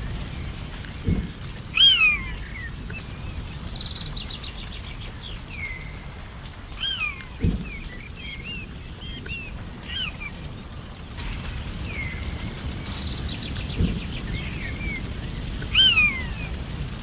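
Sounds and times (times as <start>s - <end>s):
birds calling: 0.0s - 17.0s
dull thump: 7.4s - 7.7s.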